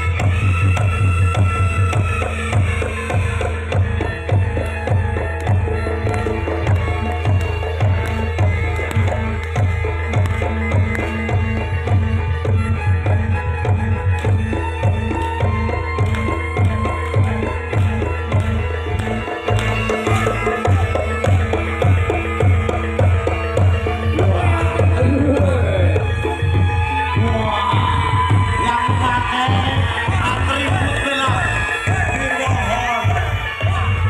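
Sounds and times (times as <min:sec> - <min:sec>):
gamelan music: 0:00.0 - 0:34.0.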